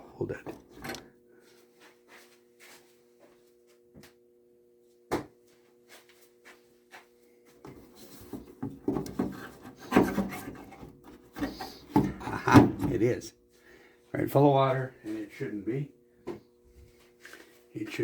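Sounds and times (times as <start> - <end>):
plastic parts scraping and rubbing: 8.3 - 11.9.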